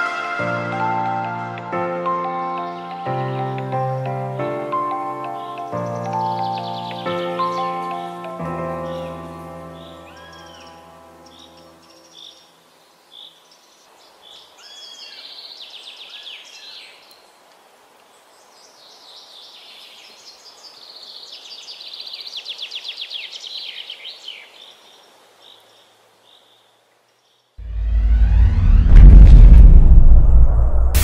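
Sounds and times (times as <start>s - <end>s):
faint outdoor hiss: 0.0s - 27.6s
birds chirping and trilling: 4.8s - 17.2s, 18.2s - 27.6s.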